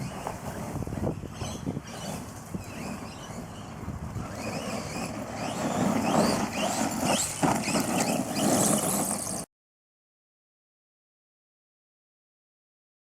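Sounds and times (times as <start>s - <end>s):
rc truck tyres on dirt: 0.0s - 9.5s.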